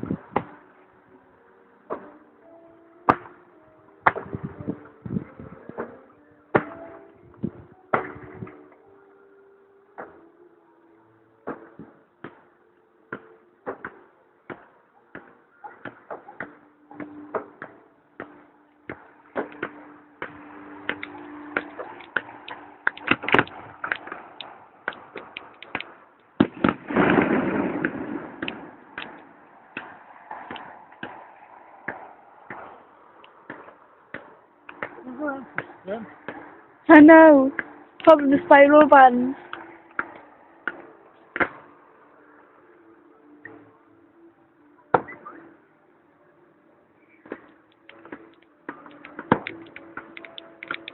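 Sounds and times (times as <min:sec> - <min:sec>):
fireworks bangs and crackles: 0:18.2 - 0:32.8.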